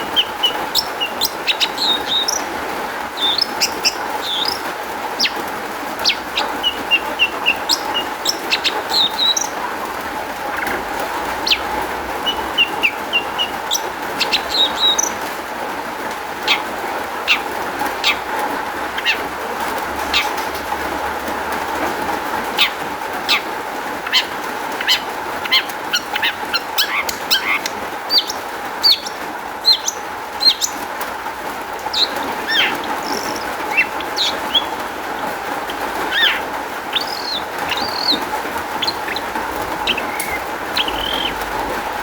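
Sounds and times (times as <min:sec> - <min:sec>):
shrike singing chips and whistles: 0:00.0 - 0:09.6, 0:11.4 - 0:15.2, 0:22.6 - 0:30.8, 0:31.8 - 0:35.0, 0:35.7 - 0:41.6.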